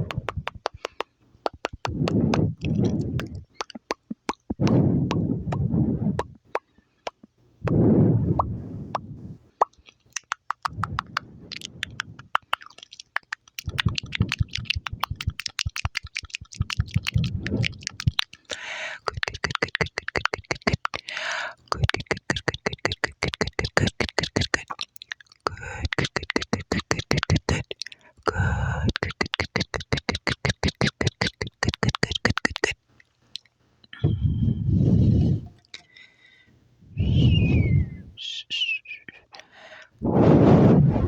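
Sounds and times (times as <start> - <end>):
wet mouth clicks and smacks: 0.0 - 7.8, 8.4 - 34.0, 35.2 - 36.0
low rumble: 34.0 - 35.6.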